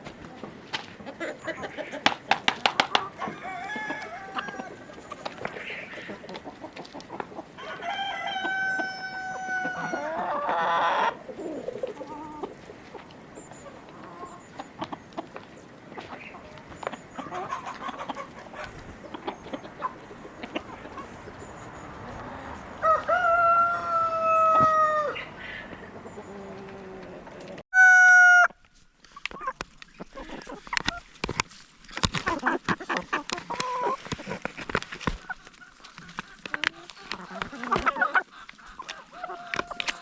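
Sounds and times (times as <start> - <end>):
hens clucking: 0.0 - 28.5, 29.1 - 40.0
rooster crowing: 3.2 - 4.9, 7.6 - 11.2, 22.0 - 25.7, 27.8 - 28.5.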